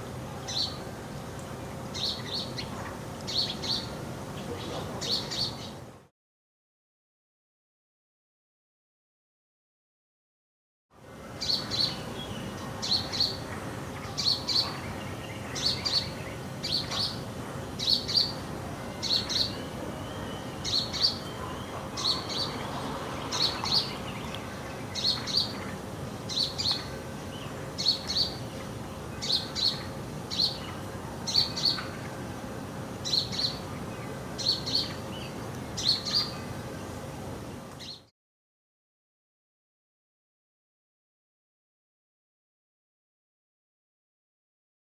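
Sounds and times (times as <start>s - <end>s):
sparrow chirping: 2.0s - 5.8s, 11.4s - 17.2s, 17.8s - 18.4s, 19.0s - 28.5s, 29.2s - 31.9s, 33.0s - 33.7s, 34.4s - 36.4s.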